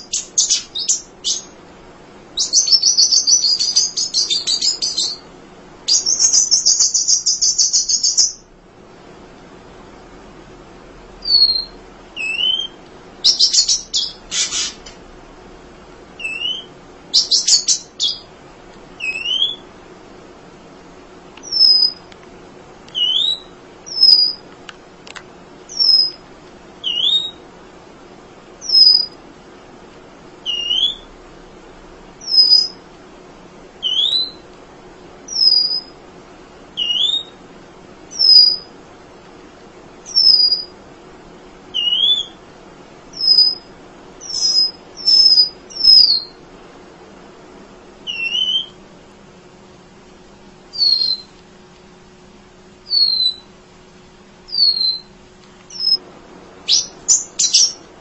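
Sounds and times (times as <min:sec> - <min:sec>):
bird buzzy trills: 0:00.0 - 0:01.6, 0:02.3 - 0:08.6, 0:11.2 - 0:15.1, 0:16.0 - 0:18.4, 0:19.0 - 0:19.8, 0:21.4 - 0:22.1, 0:22.9 - 0:24.5, 0:25.6 - 0:26.2, 0:26.8 - 0:27.5, 0:28.6 - 0:29.2, 0:30.4 - 0:31.2, 0:32.1 - 0:32.8, 0:33.8 - 0:34.5, 0:35.3 - 0:36.0, 0:36.7 - 0:37.4, 0:38.1 - 0:38.7, 0:40.0 - 0:40.8, 0:41.7 - 0:42.5, 0:43.1 - 0:46.4, 0:48.0 - 0:48.8, 0:50.7 - 0:51.4, 0:52.8 - 0:53.6, 0:54.5 - 0:57.9
bird whistling calls: 0:00.0 - 0:01.6, 0:02.4 - 0:05.2, 0:05.9 - 0:08.5, 0:11.2 - 0:14.9, 0:16.2 - 0:18.3, 0:19.0 - 0:19.7, 0:21.4 - 0:22.1, 0:22.9 - 0:24.4, 0:25.7 - 0:26.2, 0:26.8 - 0:27.4, 0:28.6 - 0:29.1, 0:30.4 - 0:31.1, 0:32.2 - 0:32.8, 0:33.8 - 0:34.4, 0:35.3 - 0:36.0, 0:36.8 - 0:37.4, 0:38.1 - 0:38.7, 0:40.1 - 0:40.7, 0:41.7 - 0:42.4, 0:43.1 - 0:46.4, 0:48.0 - 0:48.8, 0:50.7 - 0:51.3, 0:52.9 - 0:53.5, 0:54.5 - 0:55.1, 0:55.7 - 0:56.0, 0:56.6 - 0:57.8.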